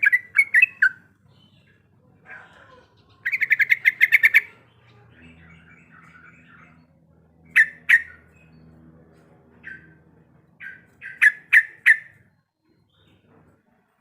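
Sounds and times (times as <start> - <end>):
bird rattling call and chirps: 0.0 - 1.2, 3.2 - 12.3.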